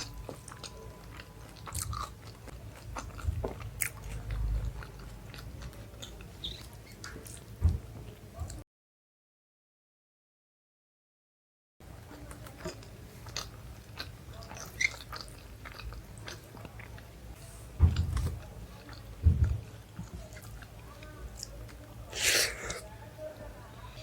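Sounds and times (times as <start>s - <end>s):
mouth chewing food: 0.0s - 7.5s, 12.0s - 23.0s.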